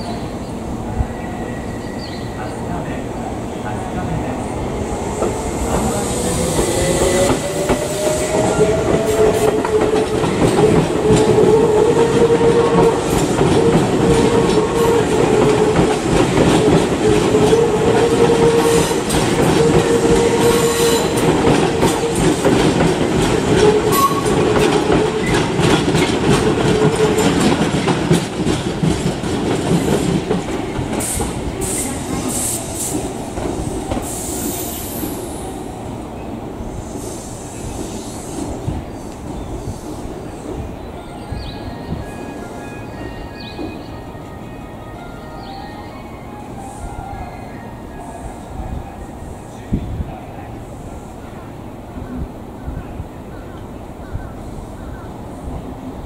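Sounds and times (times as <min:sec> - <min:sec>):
wheels clicking over rail joints: 0:21.1 - 0:31.4.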